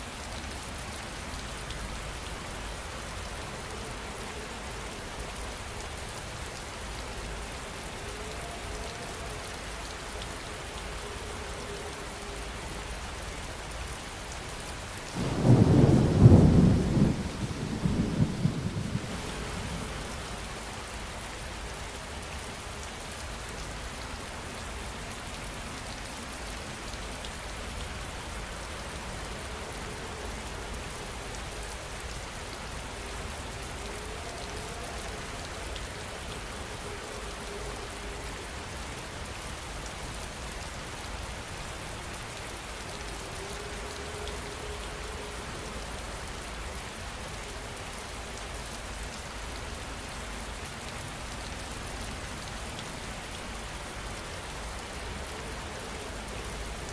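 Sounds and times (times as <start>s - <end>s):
heavy rain: 0.0s - 56.9s
thunder rumble: 15.2s - 20.8s.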